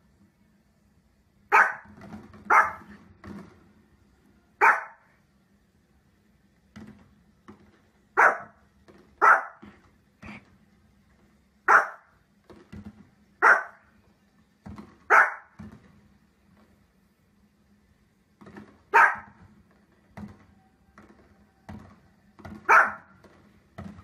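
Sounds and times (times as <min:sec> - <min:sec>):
small dog barking: 0:01.5 - 0:01.9, 0:02.5 - 0:02.9, 0:04.6 - 0:05.1, 0:08.2 - 0:08.6, 0:09.2 - 0:09.7, 0:11.7 - 0:12.1, 0:13.4 - 0:13.8, 0:15.1 - 0:15.6, 0:18.9 - 0:19.4, 0:22.6 - 0:23.1.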